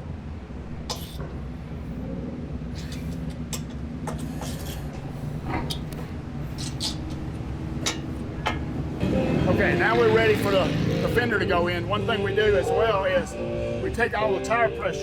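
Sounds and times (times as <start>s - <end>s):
low shop hum: 0.0s - 15.0s
hand tools clicking and tapping: 6.6s - 8.7s.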